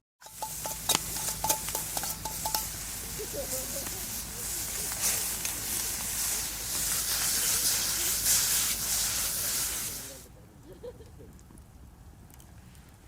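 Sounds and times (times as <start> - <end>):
food sizzling in a frying pan: 0.2 - 10.2.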